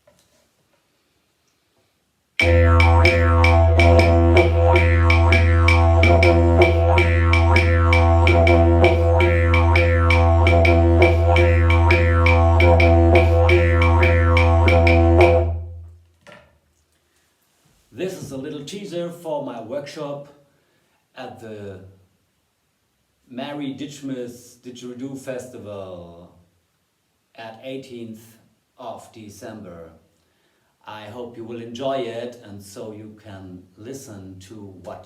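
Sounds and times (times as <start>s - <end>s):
didgeridoo playing: 2.4s - 15.8s.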